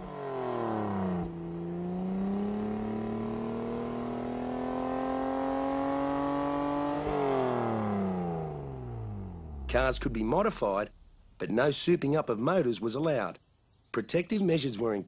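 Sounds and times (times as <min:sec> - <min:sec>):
car engine accelerating: 0:00.0 - 0:11.2.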